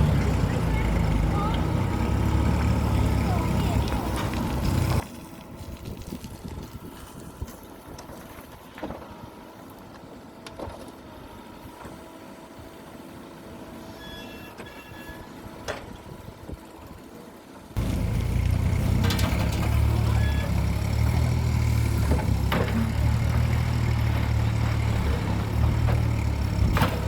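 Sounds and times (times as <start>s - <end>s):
distant heavy machinery rumble: 0.0s - 5.0s, 17.8s - 27.0s.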